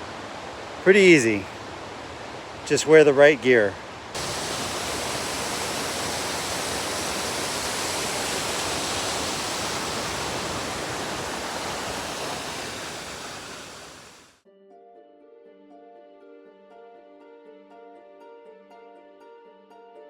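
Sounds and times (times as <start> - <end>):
waterfall rushing: 0.0 - 14.4.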